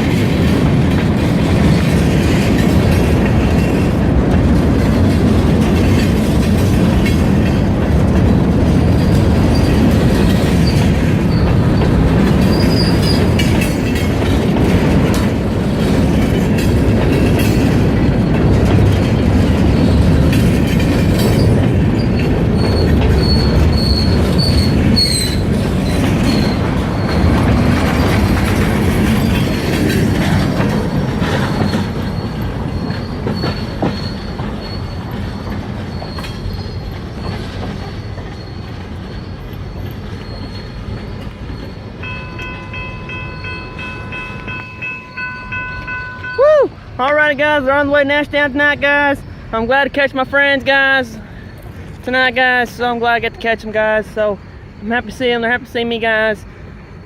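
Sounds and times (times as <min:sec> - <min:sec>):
freight train rumble: 0:00.0 - 0:57.0
high wheel squeal: 0:09.4 - 0:13.9, 0:21.2 - 0:27.4, 0:30.7 - 0:46.9
steady chord of tones: 0:42.0 - 0:46.4.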